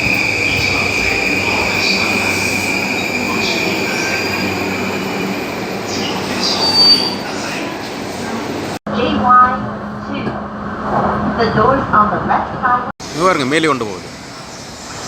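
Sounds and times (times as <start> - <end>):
train running on rails: 0.0 - 15.0
sharp high squeak: 6.0 - 7.4.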